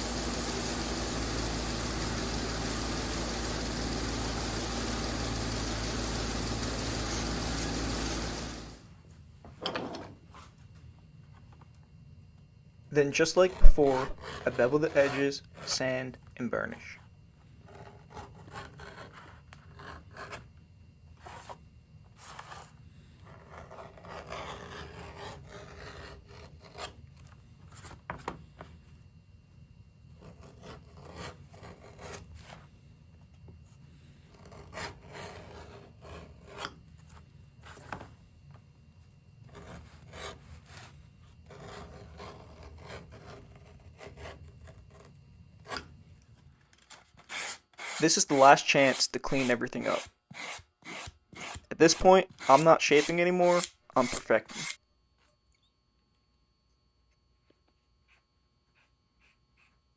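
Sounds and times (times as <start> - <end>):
scraping and rubbing leather: 13.4 - 15.8, 21.2 - 28.0, 39.5 - 54.8.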